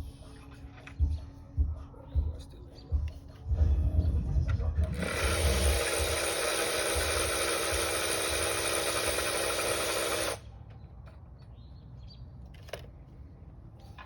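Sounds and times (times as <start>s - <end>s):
handheld power tool running: 4.8s - 10.5s.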